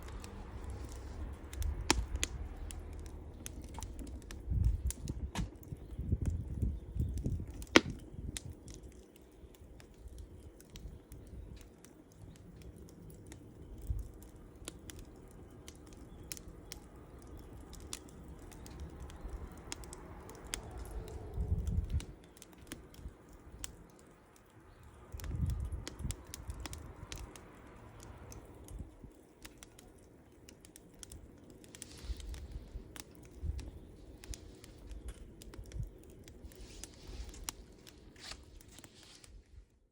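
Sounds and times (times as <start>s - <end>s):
low rumbles: 0.0s - 9.0s, 12.3s - 23.8s, 31.0s - 39.5s
fire popping and snapping: 0.0s - 39.9s
wood fire crackling: 0.0s - 39.9s.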